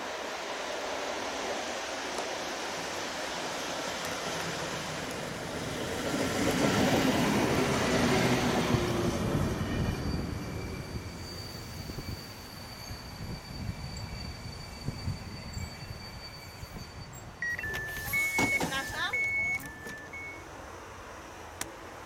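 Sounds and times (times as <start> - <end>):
electric locomotive passing slowly: 0.0 - 22.0
train coaches rolling by: 0.0 - 22.0
high brake squeal: 9.5 - 20.4.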